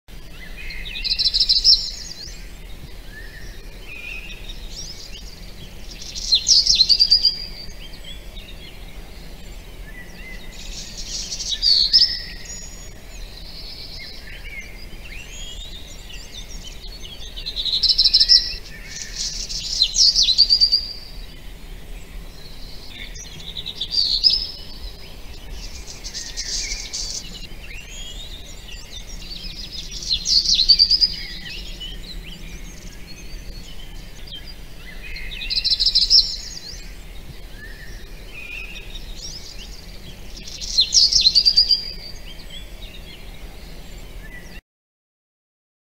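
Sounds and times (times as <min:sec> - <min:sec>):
faint bird chirps and calls: 0:00.1 - 0:44.6
loud high-pitched birdsong: 0:00.1 - 0:44.6.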